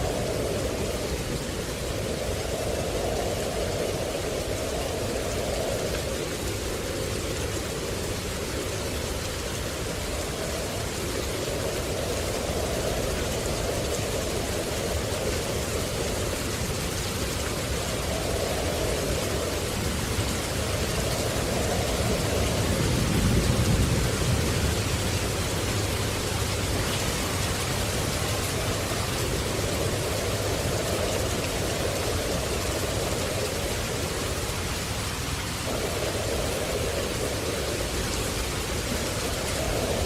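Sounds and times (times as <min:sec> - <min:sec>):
steady rain: 0:00.0 - 0:40.0.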